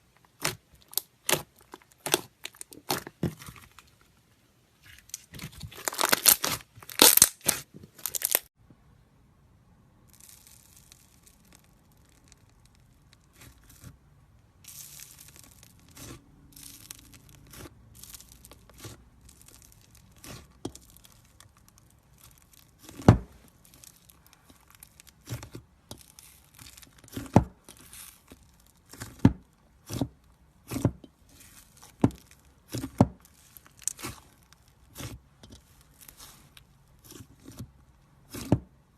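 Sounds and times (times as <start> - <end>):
slime crackling: 0.1 - 4.0, 4.8 - 8.5, 10.1 - 14.0, 14.6 - 38.5.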